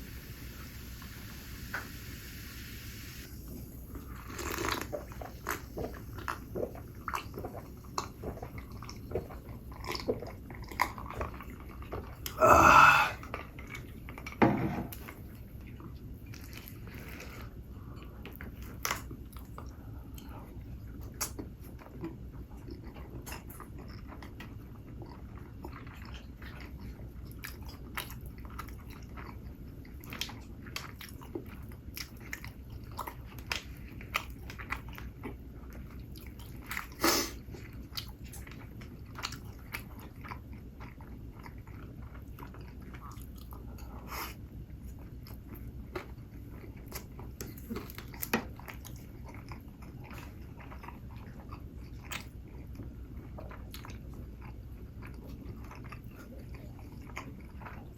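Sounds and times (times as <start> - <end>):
low room hum: 0.0 - 57.9
person biting and chewing: 4.2 - 5.7.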